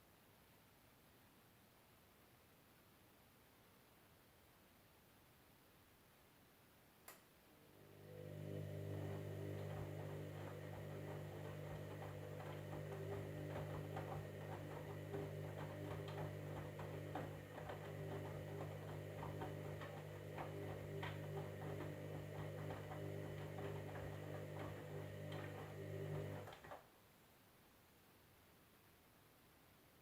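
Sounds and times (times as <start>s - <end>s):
washing machine motor hum: 7.6s - 26.8s.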